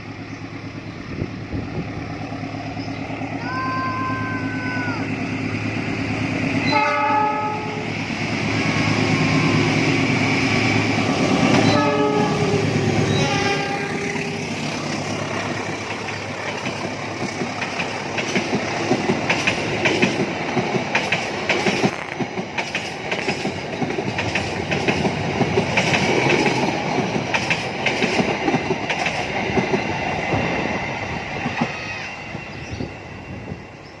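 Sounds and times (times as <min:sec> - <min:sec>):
train rumble: 0:00.0 - 0:34.0
train horn blast: 0:06.6 - 0:08.0, 0:11.5 - 0:14.6
train wheels clacking: 0:07.9 - 0:33.1.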